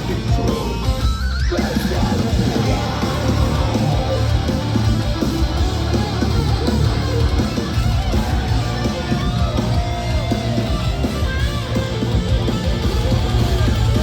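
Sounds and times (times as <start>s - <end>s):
live metal band playing: 0.0s - 14.0s.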